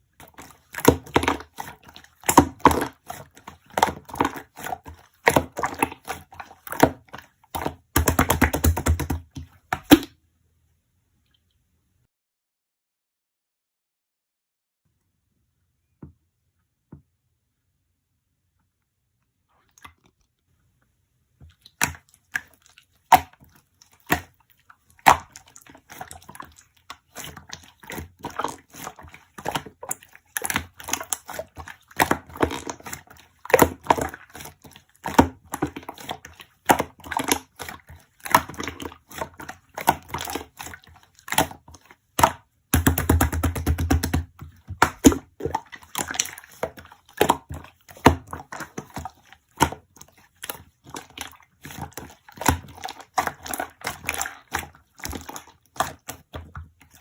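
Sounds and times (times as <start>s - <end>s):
slime clicking and popping: 6.8s - 10.1s, 42.2s - 46.6s.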